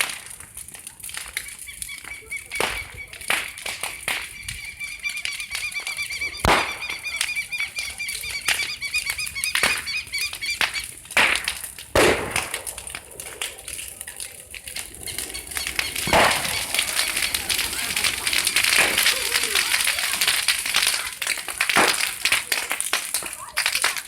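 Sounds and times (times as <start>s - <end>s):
bonfire crackling and popping: 0.0s - 24.0s
bird chirping: 4.2s - 11.0s, 14.8s - 17.4s.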